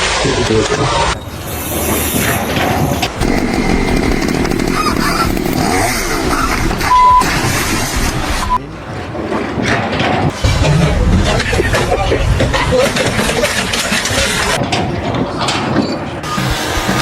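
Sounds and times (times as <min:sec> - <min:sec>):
small engine running: 0:03.0 - 0:08.6
short steady beep: 0:06.8 - 0:07.3.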